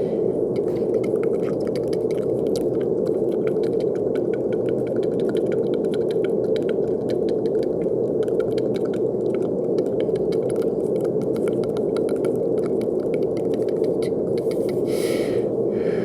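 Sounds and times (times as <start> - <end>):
brown noise hiss: 0.0 - 16.0
faint crackling ticks: 5.0 - 14.8.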